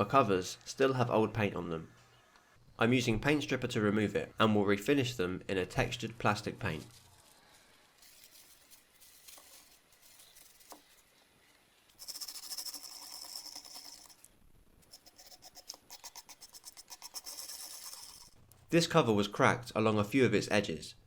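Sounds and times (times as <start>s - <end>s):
scratchy scrubbing of paint: 7.0s - 18.4s.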